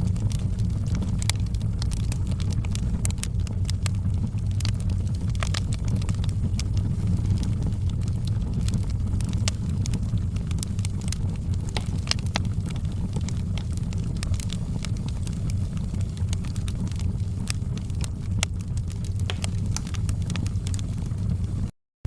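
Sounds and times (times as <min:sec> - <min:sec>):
burning wood crackling and popping: 0:00.0 - 0:21.7
fire rumbling: 0:00.0 - 0:21.7.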